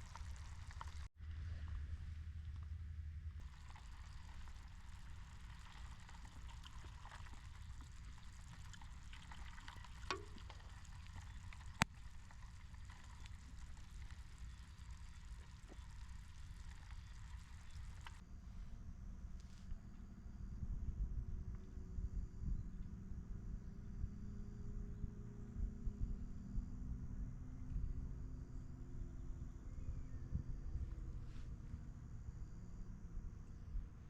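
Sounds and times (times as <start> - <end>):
campfire crackling with pops: 0.0 - 1.1, 3.4 - 18.2
steady low rumble: 0.0 - 24.3.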